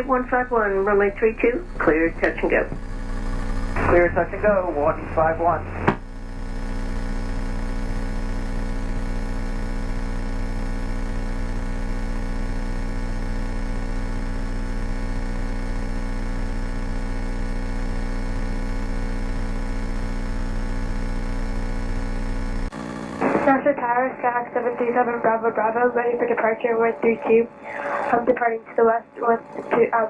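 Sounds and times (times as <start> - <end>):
propeller plane engine droning: 0.0 - 8.9.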